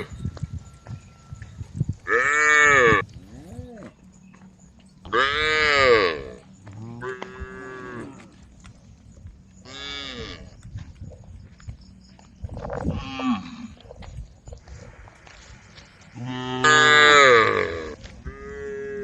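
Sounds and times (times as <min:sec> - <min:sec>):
cows mooing: 0:02.0 - 0:04.0, 0:05.1 - 0:08.5, 0:09.6 - 0:10.5, 0:16.2 - 0:19.0.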